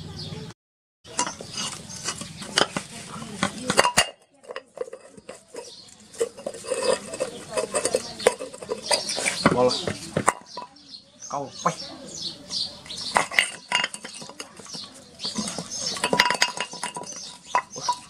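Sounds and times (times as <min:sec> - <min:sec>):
metal parts knocking and clinking: 0:01.1 - 0:02.8, 0:03.7 - 0:09.6, 0:13.0 - 0:18.0.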